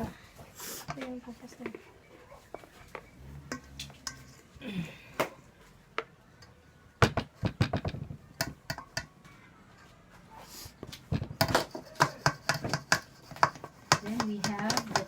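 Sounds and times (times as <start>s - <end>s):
utensil knocking against bowl: 11.4s - 15.0s.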